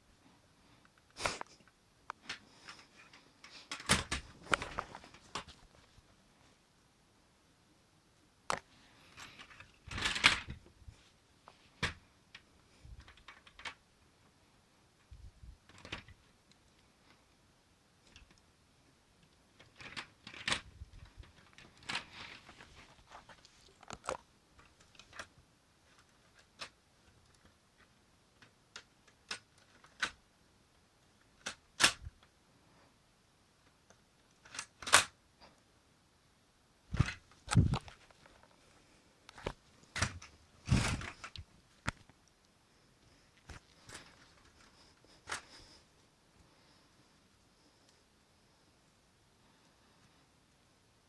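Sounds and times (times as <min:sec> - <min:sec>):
plastic mechanism rattle: 0:02.2 - 0:05.6, 0:09.1 - 0:10.6, 0:19.2 - 0:25.3, 0:25.9 - 0:30.2, 0:31.2 - 0:32.2, 0:34.2 - 0:35.2, 0:36.9 - 0:38.4, 0:39.3 - 0:42.1, 0:43.4 - 0:45.8
plastic toy gun clicks and clacks: 0:31.4 - 0:32.1, 0:34.4 - 0:35.2.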